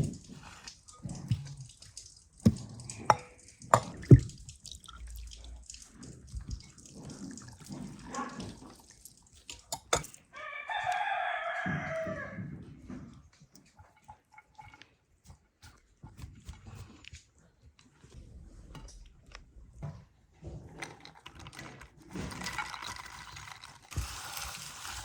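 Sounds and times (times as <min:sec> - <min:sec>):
sharp knocks and clatter: 0:02.4 - 0:04.5
rooster crowing: 0:10.3 - 0:12.4.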